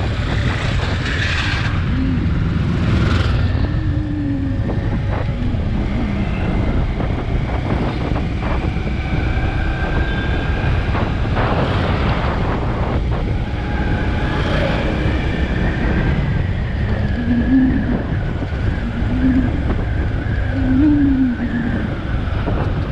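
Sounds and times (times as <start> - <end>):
highway traffic rumble: 0.0 - 22.9.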